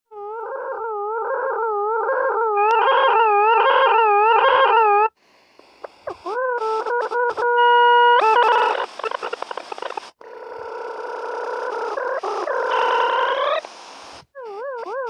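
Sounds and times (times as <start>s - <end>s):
buzzy wavering electronic tone: 2.6s - 15.0s
faint hiss: 10.8s - 15.0s.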